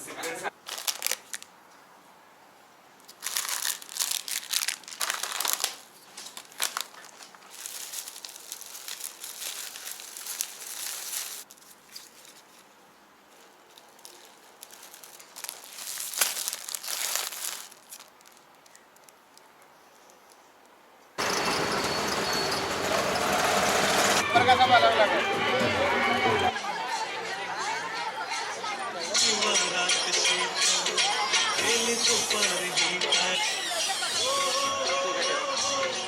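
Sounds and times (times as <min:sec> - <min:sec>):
crinkly wrapping crumpled: 0:00.5 - 0:01.5, 0:03.0 - 0:20.4.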